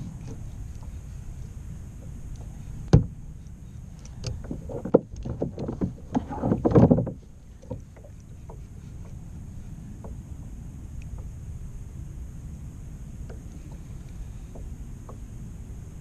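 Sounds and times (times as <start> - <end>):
steady low rumble: 0.0 - 16.0
gear knocking against kayak hull: 2.0 - 3.2, 4.1 - 9.2.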